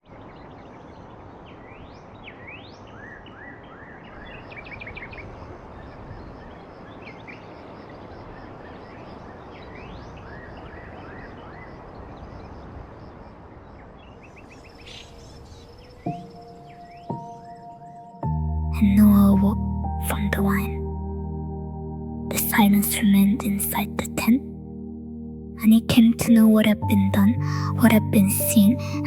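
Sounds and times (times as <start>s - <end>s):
small birds chirping: 0.0s - 18.3s.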